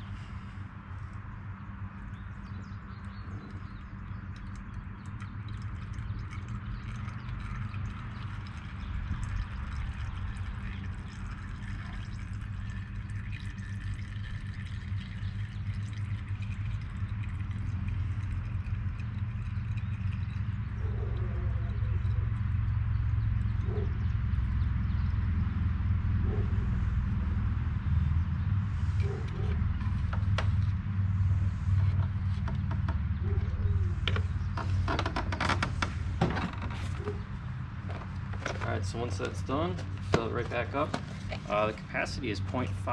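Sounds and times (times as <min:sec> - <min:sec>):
low steady rumble: 0:00.0 - 0:42.9
oil pouring into container: 0:02.0 - 0:20.8.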